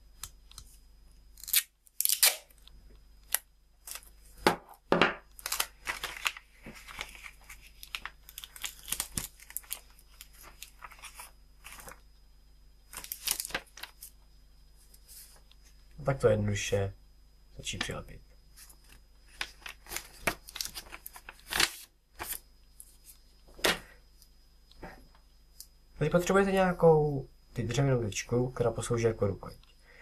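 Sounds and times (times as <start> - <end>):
packing tape ripping: 1.4 - 2.6, 5.4 - 11.2
paper crinkling: 5.4 - 12.0, 12.9 - 14.2, 18.6 - 23.8.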